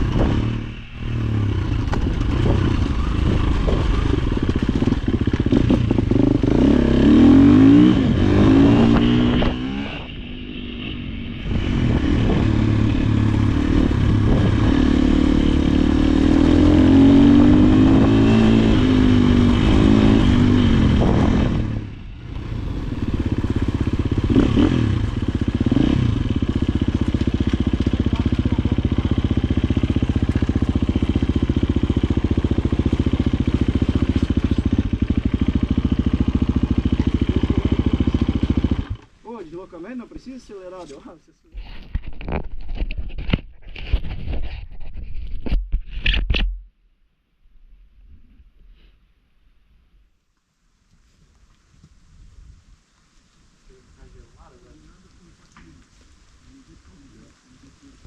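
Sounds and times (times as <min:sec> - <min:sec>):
dirt bike engine revving: 0:00.0 - 0:39.1.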